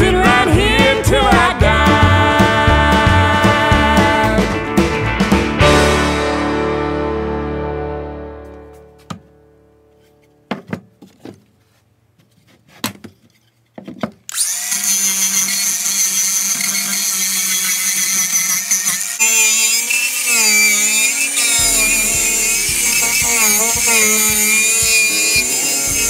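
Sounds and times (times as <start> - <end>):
angle grinder cutting wood: 14.3 - 26.0
knocks: 21.6 - 25.0.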